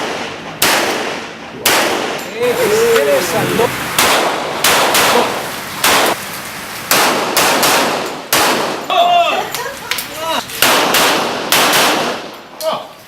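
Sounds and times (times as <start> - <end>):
pistol shots: 0.0 - 2.3, 4.0 - 6.2, 6.9 - 8.9, 10.6 - 12.4.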